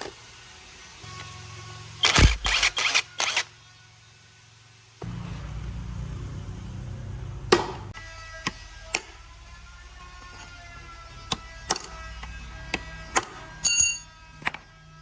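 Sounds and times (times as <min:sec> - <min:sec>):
metal tools clinking: 0:13.2 - 0:14.6.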